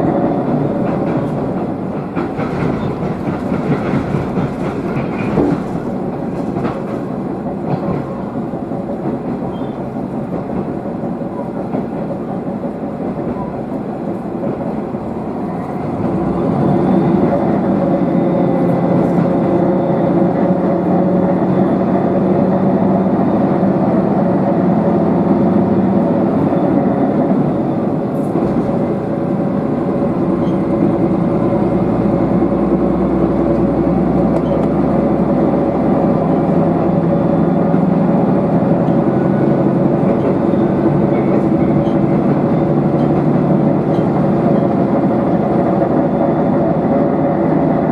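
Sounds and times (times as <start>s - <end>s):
diesel engine drone: 0.0s - 47.9s
train wheels on track: 0.0s - 47.9s.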